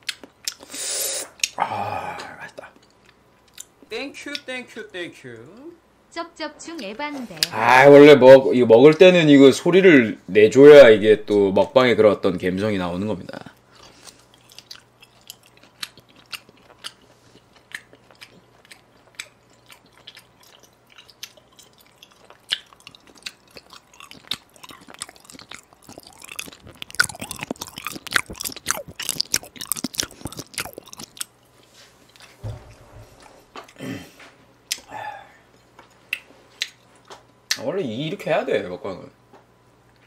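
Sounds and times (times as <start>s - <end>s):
person chewing with wet smacking: 0.0s - 0.7s, 2.2s - 3.7s, 13.6s - 32.4s, 34.7s - 34.9s, 35.5s - 37.6s.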